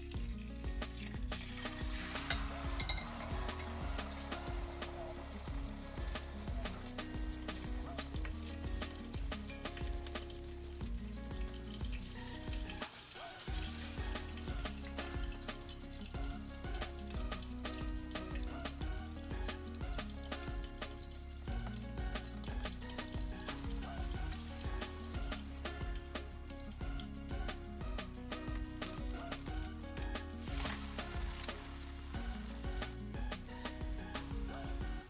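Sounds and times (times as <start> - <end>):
egg sizzling in hot oil: 0.0 - 35.0.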